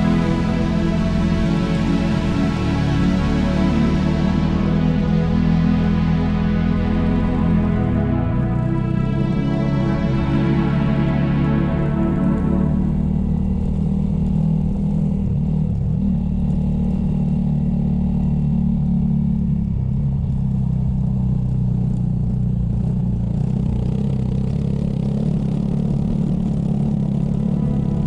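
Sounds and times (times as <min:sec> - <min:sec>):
motorcycle engine running: 0:11.6 - 0:28.0.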